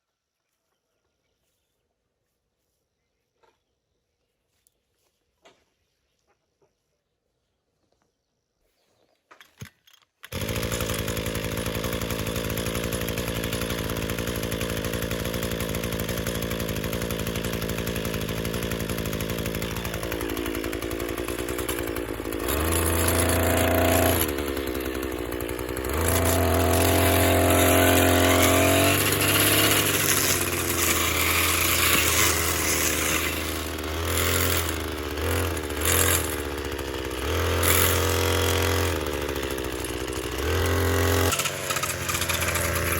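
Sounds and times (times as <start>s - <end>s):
small motor running: 10.3s - 42.9s.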